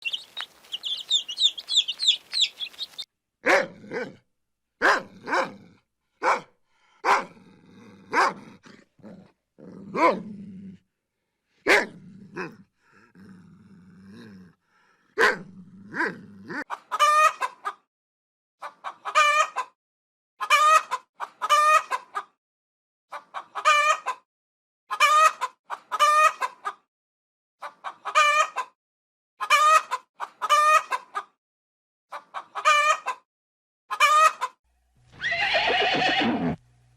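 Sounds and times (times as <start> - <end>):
farm animal calls: 0.0 - 3.0, 35.2 - 36.6
chicks peeping: 0.0 - 3.1.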